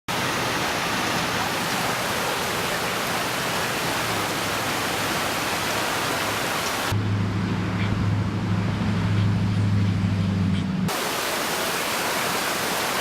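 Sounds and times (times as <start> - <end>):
water rushing from burst pipe: 0.1 - 7.0, 10.9 - 13.0.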